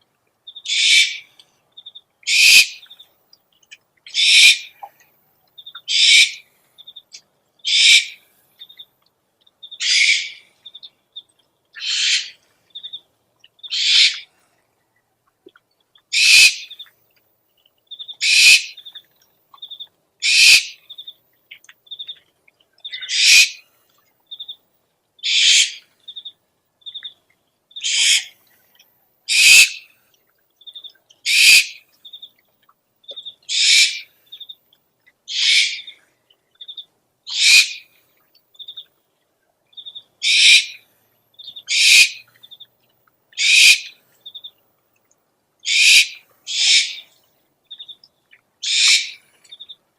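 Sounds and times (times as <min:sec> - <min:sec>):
owl hissing screech calls: 0:00.6 - 0:01.3, 0:02.3 - 0:02.8, 0:04.1 - 0:04.7, 0:05.9 - 0:06.4, 0:07.7 - 0:08.2, 0:09.8 - 0:10.4, 0:11.8 - 0:12.4, 0:13.7 - 0:14.3, 0:16.1 - 0:16.8, 0:18.2 - 0:18.8, 0:20.2 - 0:20.8, 0:22.9 - 0:23.6, 0:25.2 - 0:25.8, 0:27.8 - 0:28.4, 0:29.3 - 0:29.9, 0:31.3 - 0:31.8, 0:33.5 - 0:34.1, 0:35.3 - 0:36.0, 0:37.3 - 0:37.9, 0:40.2 - 0:40.8, 0:41.7 - 0:42.2, 0:43.4 - 0:44.0, 0:45.6 - 0:47.1, 0:48.6 - 0:49.3.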